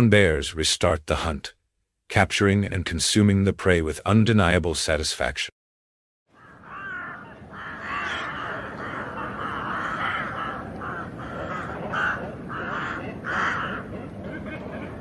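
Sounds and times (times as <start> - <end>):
birds giving harsh calls: 6.3 - 15.0.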